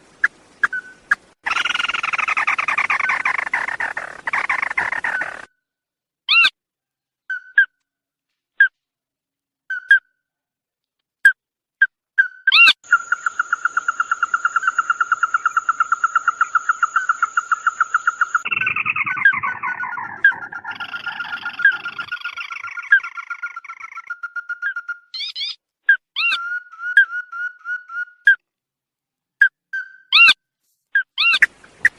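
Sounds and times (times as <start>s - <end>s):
bird calls: 0.2s - 5.5s, 12.2s - 28.4s.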